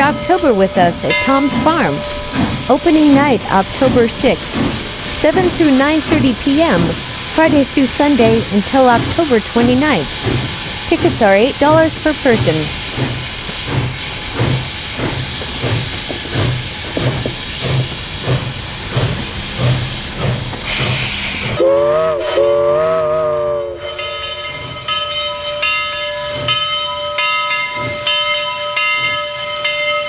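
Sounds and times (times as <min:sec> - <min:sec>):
ringing tones: 0:00.0 - 0:08.3
steam train chuffing: 0:00.0 - 0:30.0
steam whistle blowing: 0:21.5 - 0:24.5.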